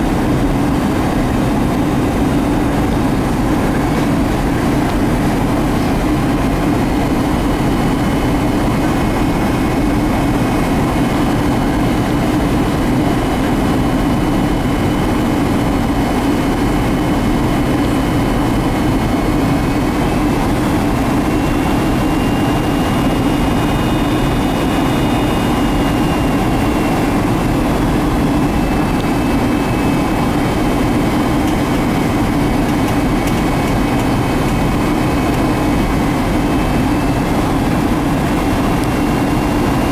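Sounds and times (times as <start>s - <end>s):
jet engine cabin noise: 0.0s - 39.9s
faint high whining tones: 17.9s - 39.9s.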